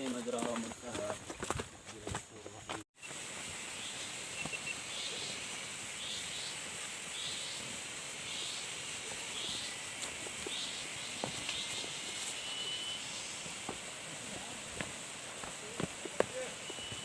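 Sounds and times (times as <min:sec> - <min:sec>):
insects droning: 0:02.5 - 0:17.0.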